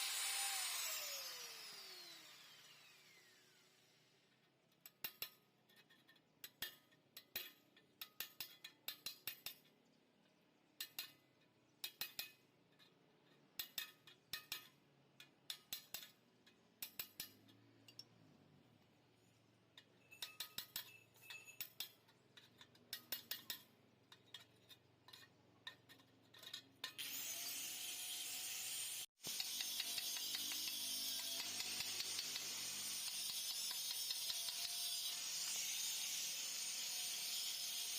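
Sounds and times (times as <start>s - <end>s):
light metallic clinks and taps: 10.8s - 18.2s, 19.7s - 27.0s.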